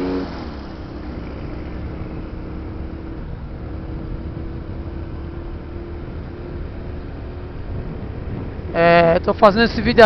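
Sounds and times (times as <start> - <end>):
road vehicle rumbling: 0.0 - 10.0.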